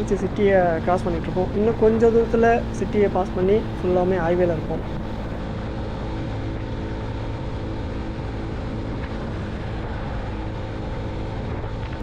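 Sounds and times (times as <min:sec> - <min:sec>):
motorcycle engine running: 0:00.0 - 0:05.4
low rumble of road and wind: 0:00.0 - 0:12.0.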